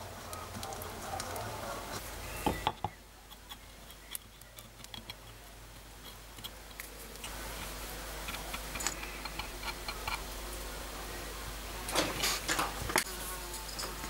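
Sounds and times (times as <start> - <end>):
faint steady background noise: 0.0 - 14.0
stick clicking and scraping on metal: 2.7 - 10.3.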